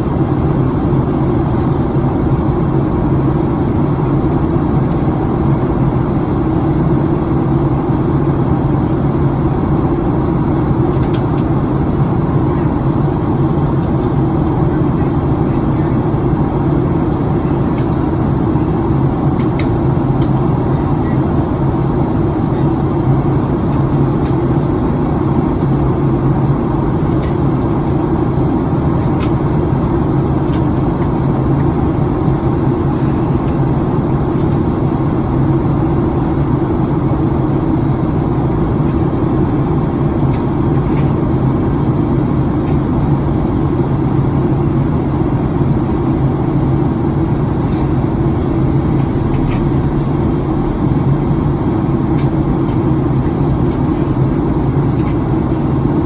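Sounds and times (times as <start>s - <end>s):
airflow rush in cabin: 0.0s - 56.0s
engine drone: 44.4s - 55.9s.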